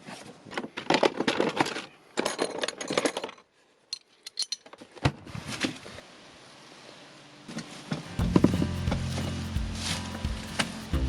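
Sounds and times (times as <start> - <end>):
dull thuds: 8.2 - 11.0.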